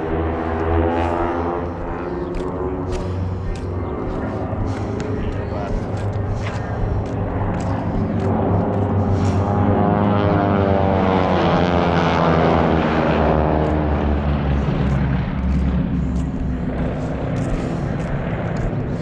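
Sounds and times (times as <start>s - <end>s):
propeller airplane flying past: 0.0s - 19.0s.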